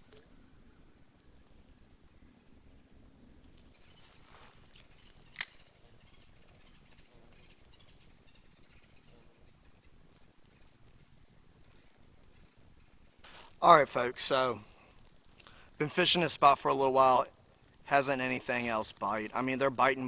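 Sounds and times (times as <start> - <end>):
high-pitched insect drone: 1.8 - 20.0
sharp click: 5.3 - 5.7.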